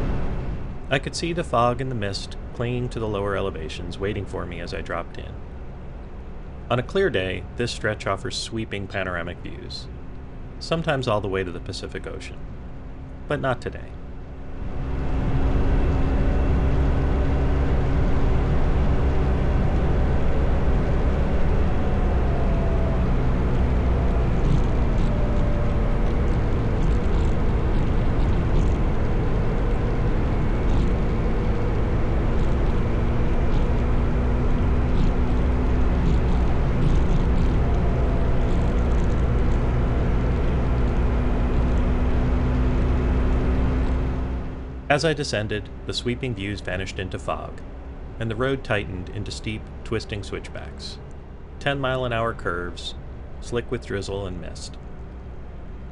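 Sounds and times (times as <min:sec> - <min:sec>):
low wind rumble: 0:00.0 - 0:55.9
motorcycle engine running: 0:14.4 - 0:44.9.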